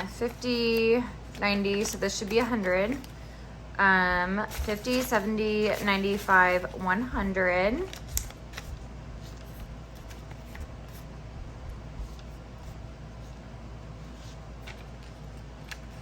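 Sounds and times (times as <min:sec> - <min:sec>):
banknotes rustling and tapping: 0:00.0 - 0:03.4, 0:04.0 - 0:11.1, 0:14.0 - 0:16.0
low room hum: 0:00.0 - 0:16.0.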